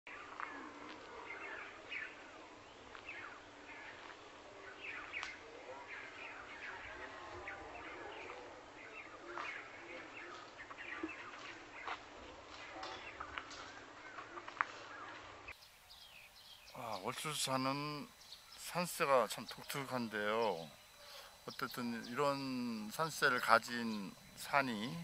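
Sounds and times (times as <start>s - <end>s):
faint outdoor hiss: 0.1s - 25.0s
birds chirping and whistling: 7.7s - 25.0s.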